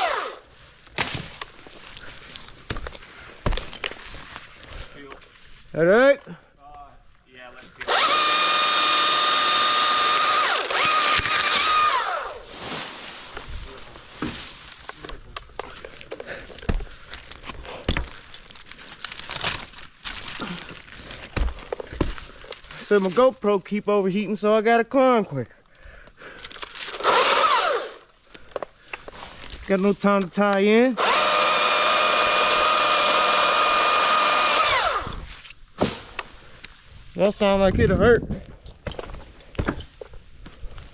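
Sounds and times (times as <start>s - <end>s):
chainsaw whining at full throttle: 0.0s - 0.4s, 7.8s - 12.4s, 27.0s - 28.0s, 31.0s - 35.2s
scraping and rustling on tree trunk: 12.1s - 16.1s.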